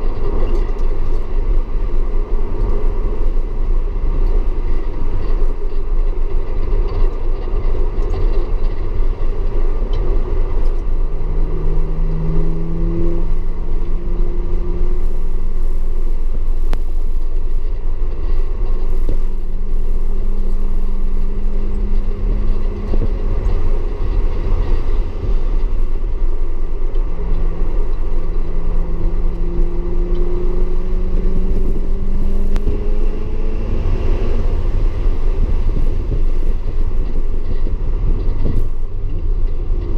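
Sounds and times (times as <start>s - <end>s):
heavy road noise rumble: 0.0s - 39.9s
car engine revving: 9.4s - 39.2s.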